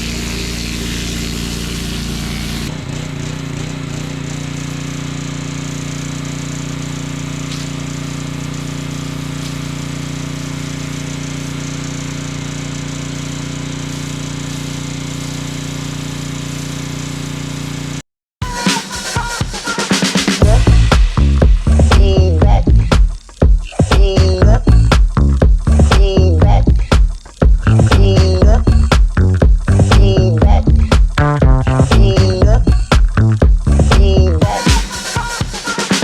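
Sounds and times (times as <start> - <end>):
small gas engine running: 0.0 - 18.0, 20.4 - 22.9.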